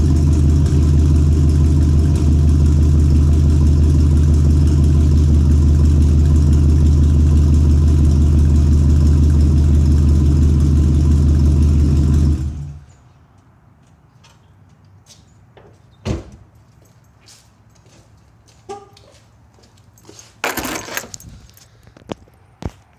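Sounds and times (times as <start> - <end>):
truck engine idling: 0.0 - 12.9.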